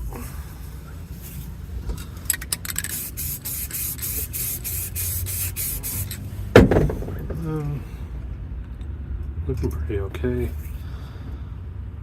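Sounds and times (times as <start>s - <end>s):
spray paint hissing: 2.3s - 6.4s
sharp knock: 6.6s - 7.5s.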